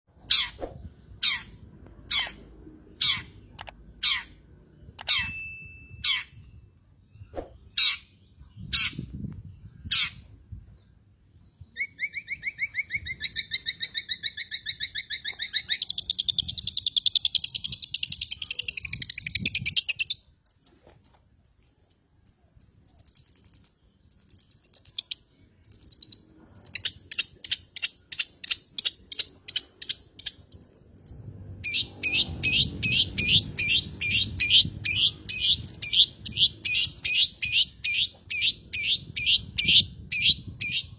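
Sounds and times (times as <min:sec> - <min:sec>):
shrike calls and chattering: 0:00.2 - 0:05.4, 0:11.7 - 0:40.9.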